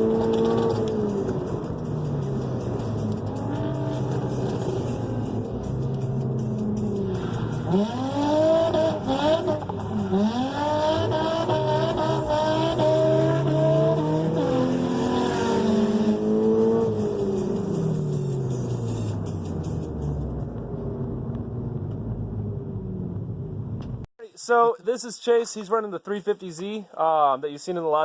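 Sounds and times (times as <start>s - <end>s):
car engine revving hard: 2.2s - 19.0s.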